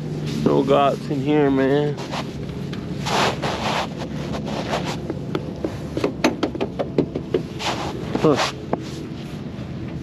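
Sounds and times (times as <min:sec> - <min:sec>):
rustling: 0:01.9 - 0:06.0.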